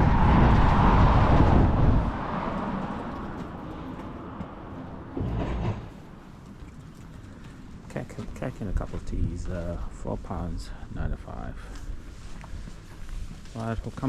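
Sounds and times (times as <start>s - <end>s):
passing vehicle rumbling: 0.0s - 6.2s.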